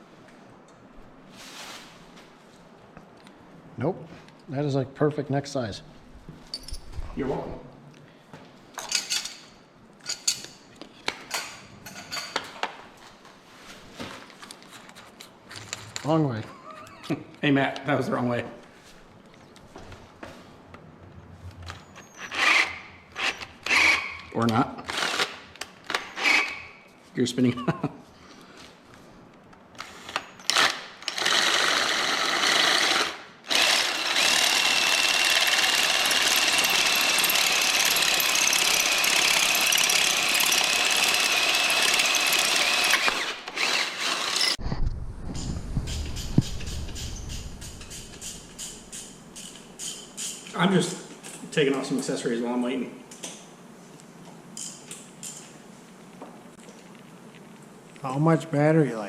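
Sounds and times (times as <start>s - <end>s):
power drill drilling: 22.2s - 24.1s, 30.5s - 44.6s.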